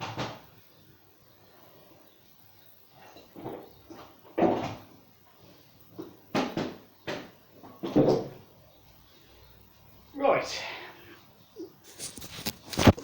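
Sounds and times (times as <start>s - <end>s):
knocks and clunks of objects: 0.0s - 0.5s, 3.2s - 5.0s, 5.9s - 8.4s, 12.0s - 13.0s.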